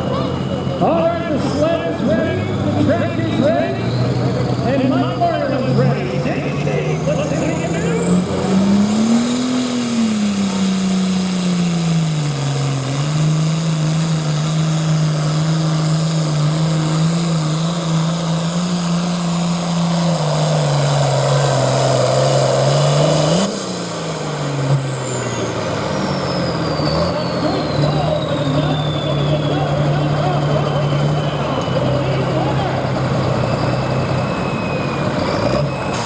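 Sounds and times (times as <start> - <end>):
tractor diesel engine under load: 0.0 - 36.0.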